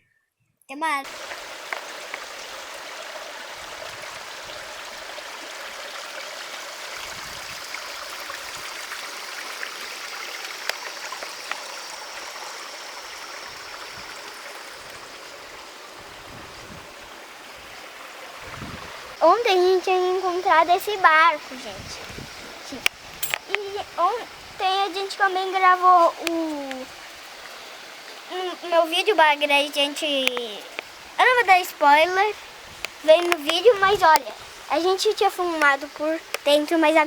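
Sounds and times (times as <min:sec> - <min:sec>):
flowing water rushing: 0:01.0 - 0:37.0
faint ticks: 0:10.5 - 0:12.3, 0:32.8 - 0:36.6.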